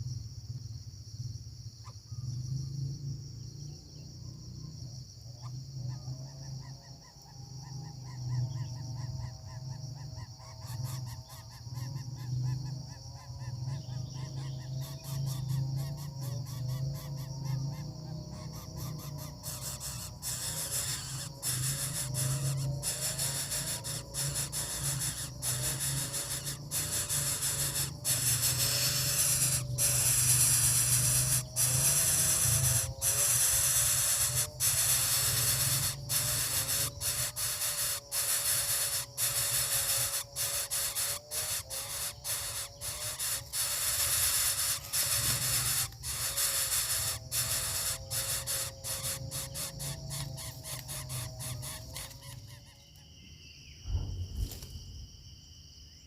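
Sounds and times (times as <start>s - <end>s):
bird chick hissing: 18.4s - 52.4s.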